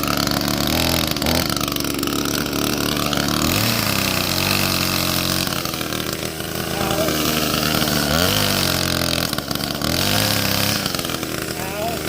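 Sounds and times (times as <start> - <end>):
chainsaw engine running: 0.0 - 12.0.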